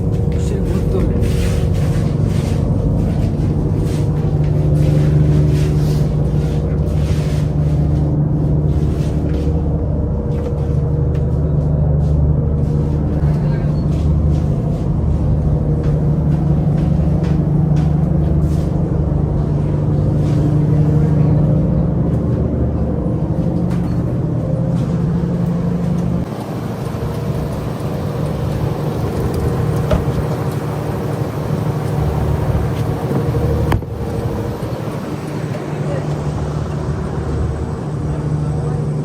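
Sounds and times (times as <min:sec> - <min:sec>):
boat engine humming: 0:00.0 - 0:39.0.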